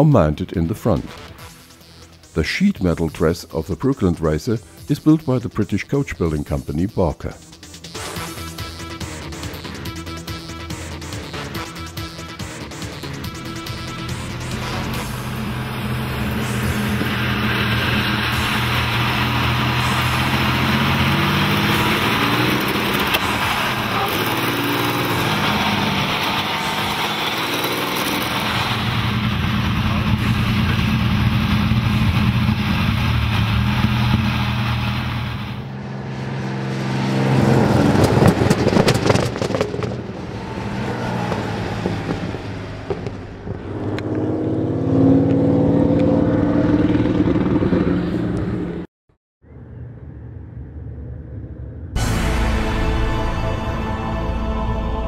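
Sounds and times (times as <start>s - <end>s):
aircraft engine running hard: 11.4s - 38.9s.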